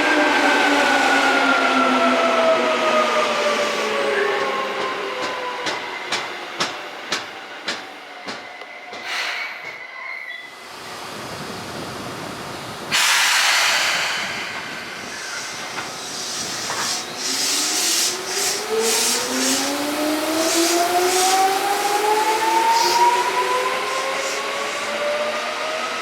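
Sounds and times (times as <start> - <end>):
train wheels clattering: 4.4 - 9.9
air brakes releasing hiss: 9.0 - 9.8, 12.9 - 19.6.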